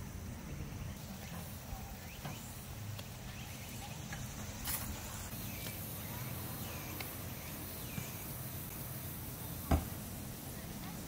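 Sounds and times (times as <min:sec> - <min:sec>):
insect chirps: 0:00.0 - 0:11.0.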